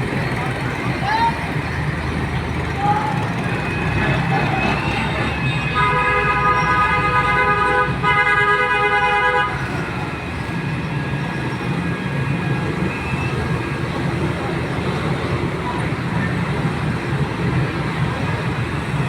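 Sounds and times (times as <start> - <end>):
diesel engines rumbling: 0.0 - 19.0
vehicle horn honking: 4.6 - 9.8.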